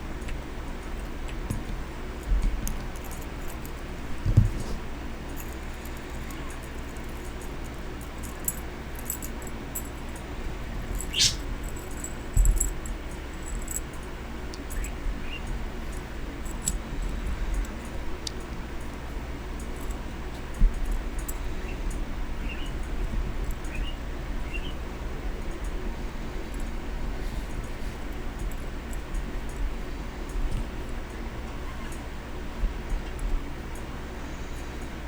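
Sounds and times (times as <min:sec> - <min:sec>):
dull thumps: 0:04.2 - 0:04.8
small metal parts clicking: 0:05.4 - 0:10.1, 0:10.8 - 0:13.9.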